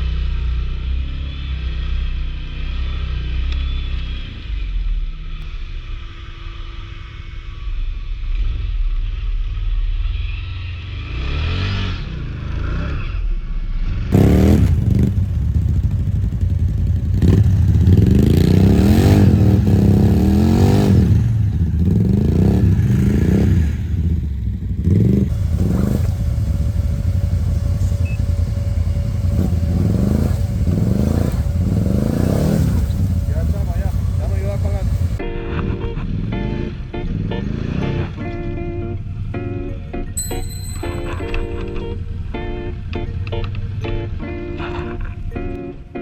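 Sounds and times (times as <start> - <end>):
atv engine revving: 14.0 - 35.2
clatter: 14.0 - 35.2.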